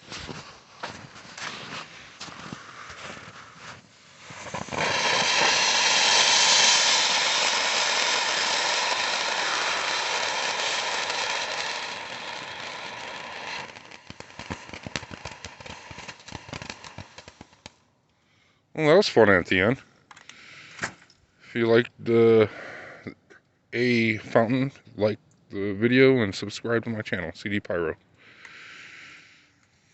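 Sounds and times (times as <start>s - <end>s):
firework fountain hissing: 3.5s - 17.7s
firework crackling pops: 3.6s - 17.8s.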